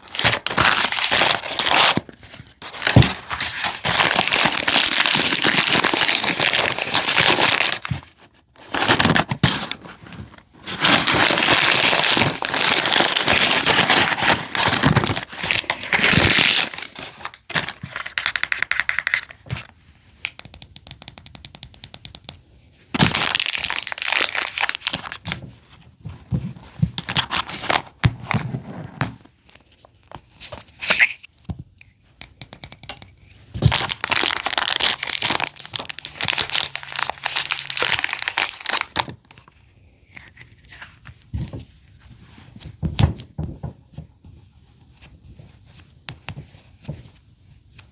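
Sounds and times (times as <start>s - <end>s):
plastic wrappers crinkling: 0.0s - 19.4s, 23.0s - 25.3s, 33.6s - 39.5s.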